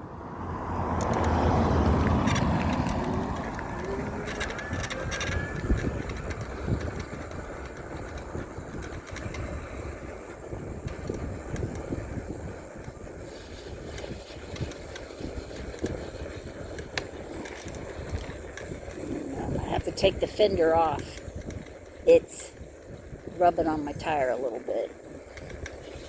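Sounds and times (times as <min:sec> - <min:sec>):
tyres rolling on road: 0:00.0 - 0:26.0
wind rumbling on microphone: 0:00.0 - 0:26.0
bike clicks and rattles: 0:00.8 - 0:23.4, 0:24.9 - 0:26.0.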